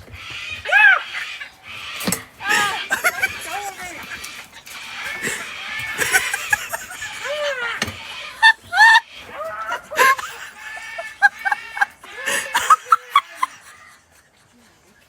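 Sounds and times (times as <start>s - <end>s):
parrot squawking: 0.3s - 14.0s
people laughing: 2.4s - 4.2s, 5.0s - 15.0s.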